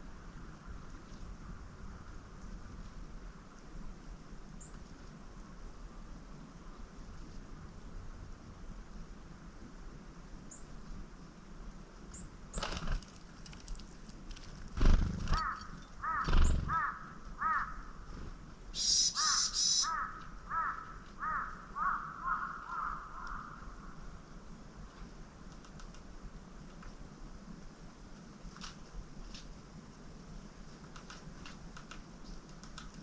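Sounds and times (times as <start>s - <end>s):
bird calling repeated notes: 15.2s - 17.8s, 18.8s - 23.6s.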